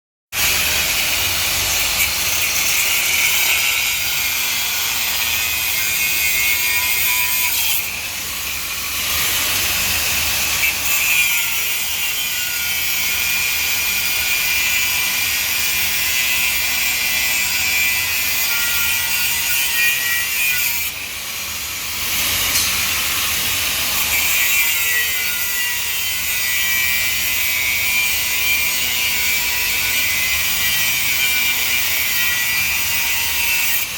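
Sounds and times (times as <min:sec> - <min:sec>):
power tool cutting: 0:00.3 - 0:33.9.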